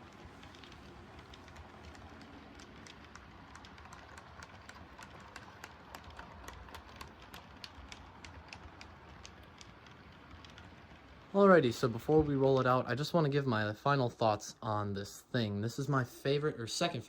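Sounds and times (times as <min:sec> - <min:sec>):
light wheel clicks on track: 0:00.0 - 0:14.0
faint model train motor hum: 0:00.0 - 0:14.1.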